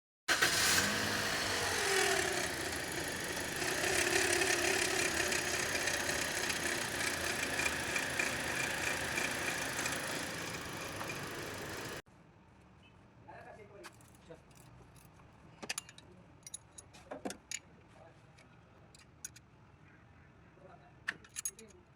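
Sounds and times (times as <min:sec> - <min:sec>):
car engine idling: 0:00.3 - 0:12.0
high whine from pulley bearing: 0:01.0 - 0:12.0.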